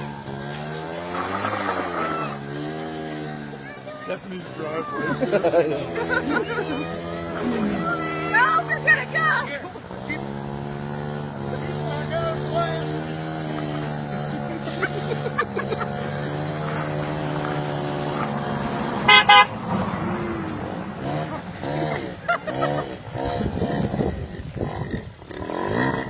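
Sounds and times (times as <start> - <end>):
engine running: 0.0 - 26.0
horn toot: 19.0 - 19.7.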